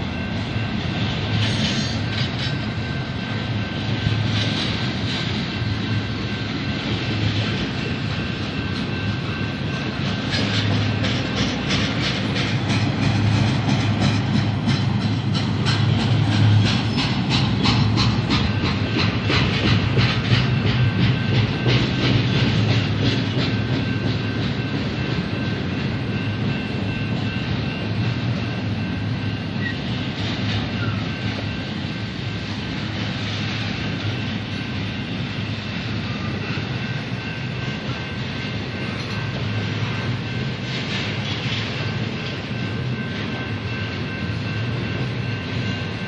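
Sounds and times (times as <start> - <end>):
freight train rumbling: 0.0 - 46.0
wheels clicking over rail joints: 6.8 - 31.5.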